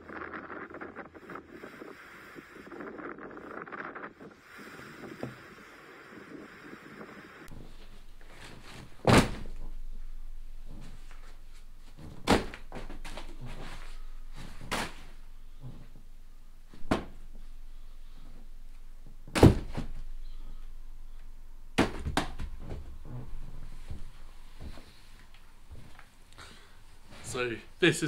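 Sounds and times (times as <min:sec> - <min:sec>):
sharp knocks and thumps: 0:11.9 - 0:16.0, 0:16.7 - 0:17.3, 0:21.8 - 0:25.0.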